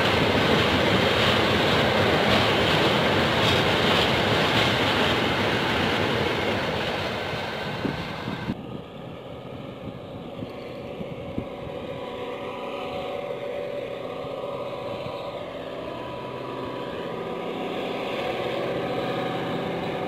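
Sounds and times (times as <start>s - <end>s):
train wheels rumbling on rail: 0.0s - 8.6s.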